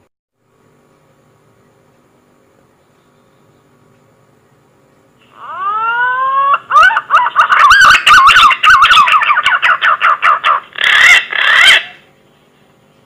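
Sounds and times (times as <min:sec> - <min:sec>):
pigeon whistling song: 0:05.4 - 0:12.0.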